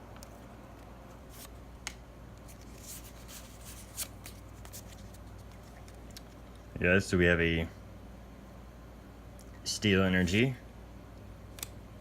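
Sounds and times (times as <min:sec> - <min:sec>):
steady low hum: 0:00.0 - 0:12.0
trading cards clicking and sliding: 0:00.2 - 0:06.4.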